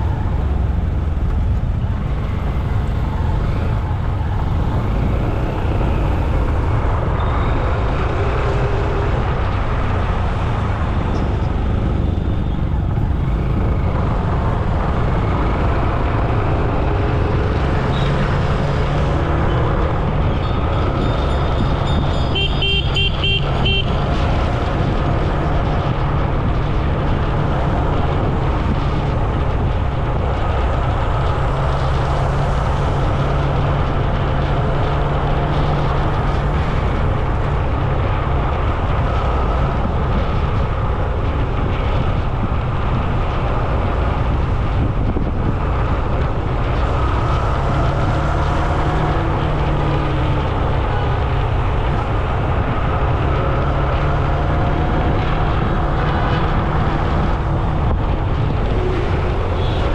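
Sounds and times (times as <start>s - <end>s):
road traffic rumble: 0.0s - 59.9s
vehicle horn beeping: 21.4s - 23.9s.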